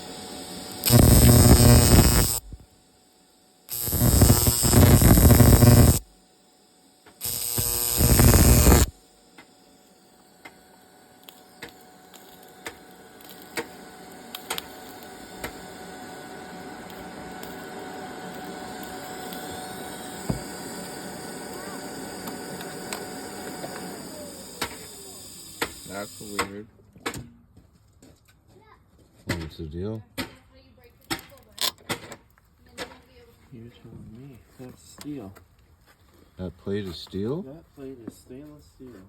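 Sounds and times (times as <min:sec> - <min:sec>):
arc welding buzzing hum: 0:00.0 - 0:26.5.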